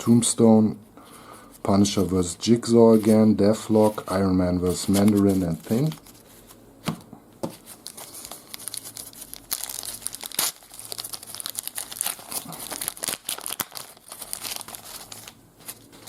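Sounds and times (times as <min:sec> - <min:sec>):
wrapper crinkling and tearing: 0:07.6 - 0:16.0.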